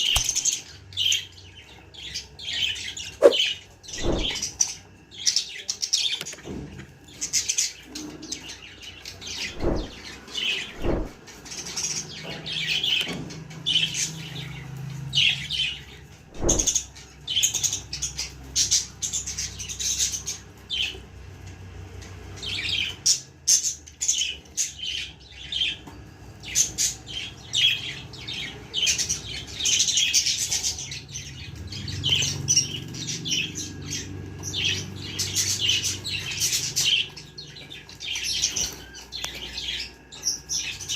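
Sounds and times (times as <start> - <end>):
budgerigars chirping: 0.0 - 6.2
soft thumps: 4.0 - 4.4, 10.8 - 11.2.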